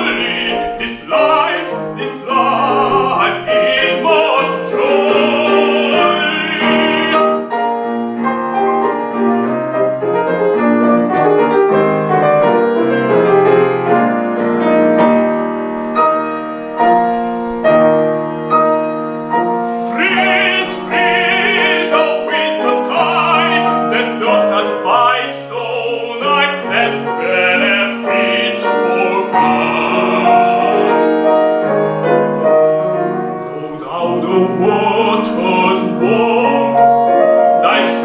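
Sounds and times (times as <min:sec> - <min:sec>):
tenor singing with vibrato: 0:00.0 - 0:07.6, 0:19.7 - 0:31.6, 0:33.5 - 0:38.0
piano accompaniment: 0:00.0 - 0:38.0.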